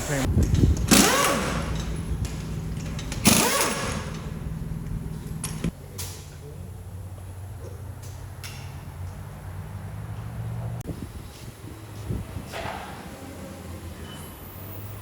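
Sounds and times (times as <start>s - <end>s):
vehicle engine idling: 0.0s - 11.3s.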